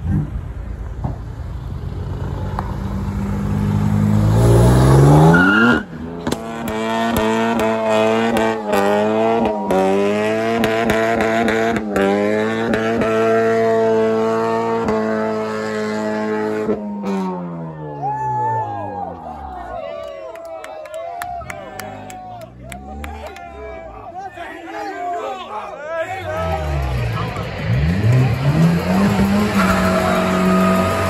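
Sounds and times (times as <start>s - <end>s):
car engine revving hard: 3.1s - 17.5s, 26.4s - 31.0s.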